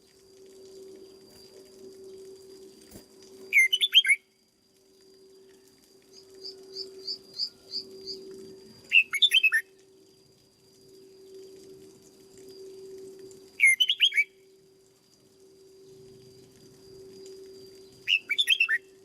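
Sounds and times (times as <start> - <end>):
steady low hum: 0.0 - 19.0
bulbul singing: 3.5 - 4.3, 6.1 - 8.3, 8.9 - 9.7, 13.6 - 14.6, 17.2 - 19.0.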